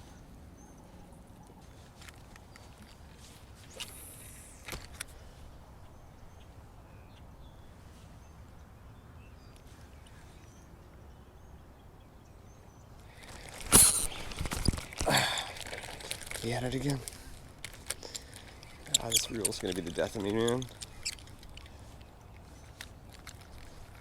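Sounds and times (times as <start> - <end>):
faint bird chirps: 18.6 - 22.8.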